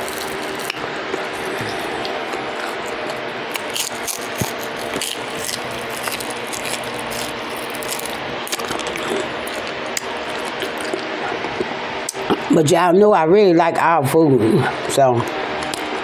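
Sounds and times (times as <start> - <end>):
chewing with mouth clicks: 0.0 - 12.4.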